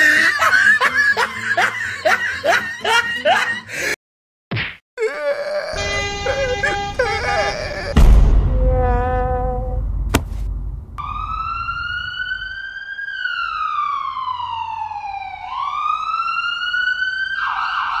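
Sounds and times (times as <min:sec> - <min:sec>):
emergency siren wailing: 0:05.8 - 0:07.8, 0:11.0 - 0:18.0
sharp knock: 0:10.1 - 0:10.7.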